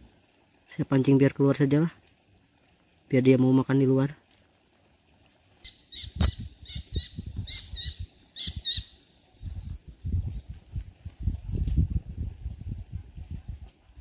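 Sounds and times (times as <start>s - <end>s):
small bird chirping: 5.6s - 11.8s
low bumps and rustles: 9.4s - 13.9s.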